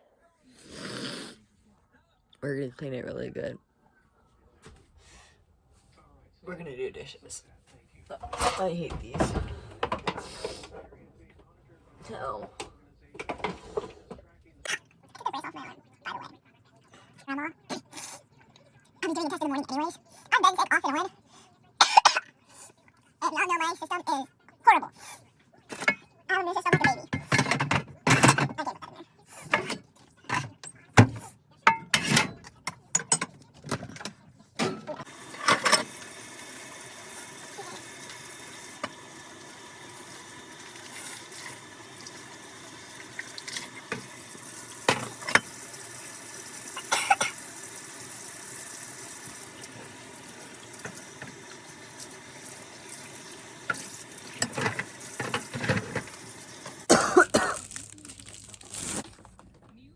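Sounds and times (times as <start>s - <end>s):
dishes knocking and clinking: 25.7s - 26.0s, 26.6s - 28.7s, 29.4s - 36.0s, 43.0s - 45.6s, 50.7s - 52.2s, 52.8s - 56.8s
tap running into sink: 35.1s - 39.2s, 39.8s - 46.1s, 47.2s - 56.8s.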